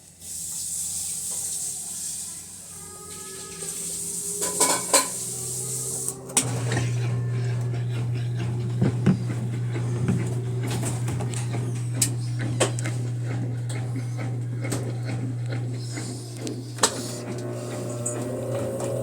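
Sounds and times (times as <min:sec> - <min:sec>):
low hum: 0:02.9 - 0:19.0.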